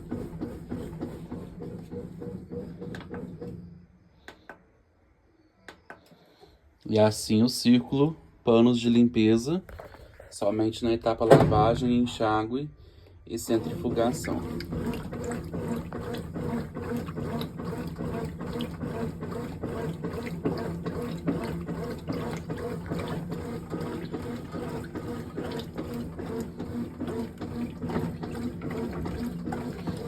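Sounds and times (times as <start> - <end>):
water sloshing in washing machine: 0.0 - 3.8, 10.4 - 12.4, 13.3 - 30.0
washing machine hum: 0.0 - 4.0, 6.9 - 30.0.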